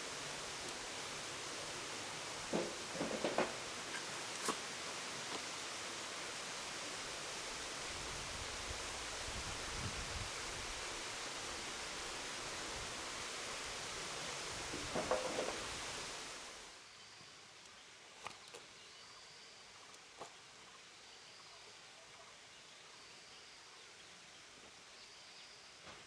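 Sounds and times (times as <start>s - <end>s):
outdoor background hiss: 0.0s - 26.0s
short knocks and rustles: 2.5s - 4.6s, 14.7s - 15.7s.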